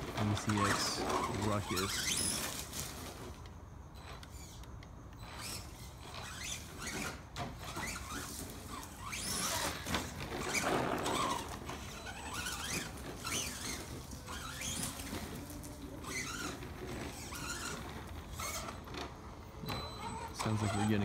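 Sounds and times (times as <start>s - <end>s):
electric motor whining: 0.0s - 21.0s
tyre and drivetrain noise: 0.0s - 21.0s.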